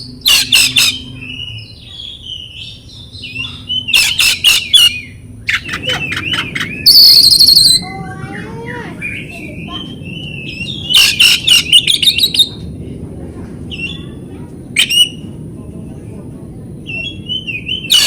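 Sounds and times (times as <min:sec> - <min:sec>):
songbird singing varied song: 0:00.0 - 0:12.6, 0:16.8 - 0:18.0.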